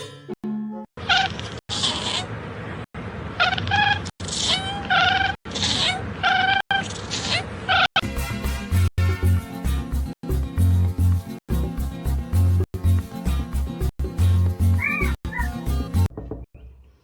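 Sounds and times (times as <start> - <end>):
cat meowing: 3.4 - 7.9, 14.8 - 15.6.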